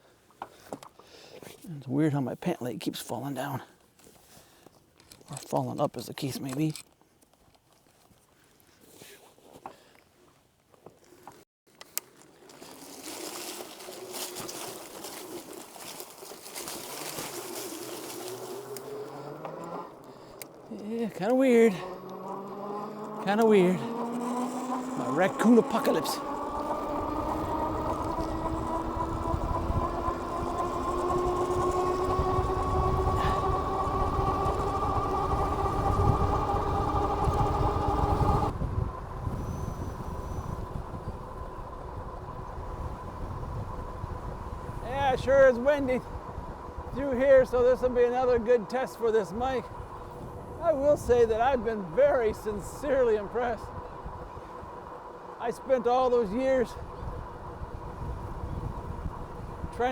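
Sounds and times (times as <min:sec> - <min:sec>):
tyres on road: 0:10.8 - 0:59.9
faint steady hum: 0:11.8 - 0:59.9
electric motor whine: 0:16.9 - 0:44.8, 0:49.7 - 0:59.9
wind rushing over microphone: 0:23.2 - 0:48.6, 0:49.3 - 0:54.9, 0:56.0 - 0:59.9.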